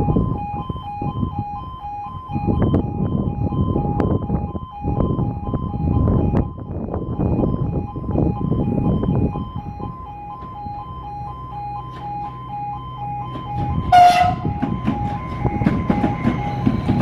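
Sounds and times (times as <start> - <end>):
level crossing two-tone alarm: 0.0 - 17.0
train rumbling: 3.9 - 17.0
shrill train horn blast: 13.9 - 15.2.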